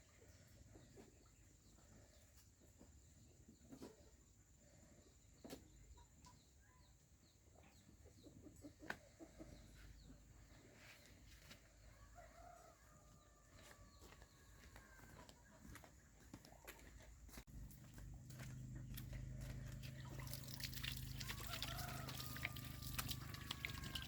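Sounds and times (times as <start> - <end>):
chickens clucking: 7.5 - 10.9, 18.4 - 24.0.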